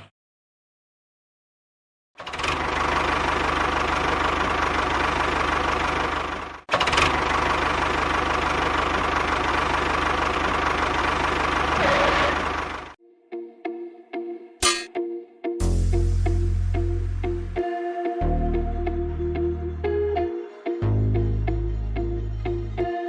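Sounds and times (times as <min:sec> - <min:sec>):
engine running with low pulse: 0:02.2 - 0:13.0.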